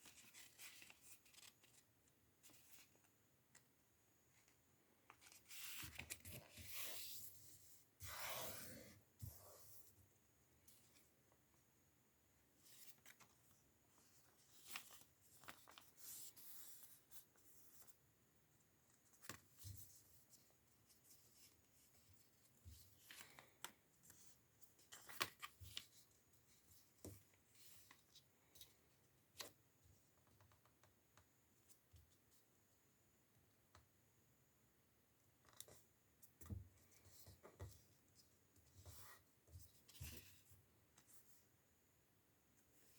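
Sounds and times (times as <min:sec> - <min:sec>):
paper rustling and crinkling: 0:00.0 - 0:03.1, 0:05.1 - 0:07.4, 0:12.6 - 0:18.0.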